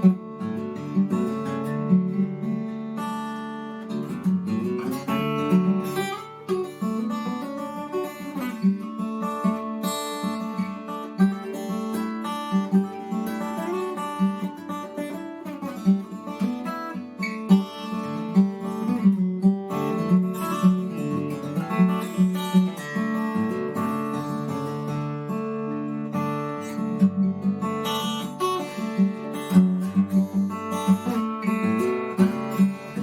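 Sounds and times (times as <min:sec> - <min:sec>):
acoustic guitar playing: 0:00.0 - 0:33.0.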